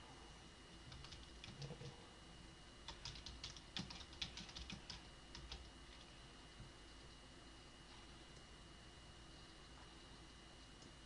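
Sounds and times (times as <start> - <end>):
typing on a keyboard: 0.9 - 1.9, 2.9 - 5.7.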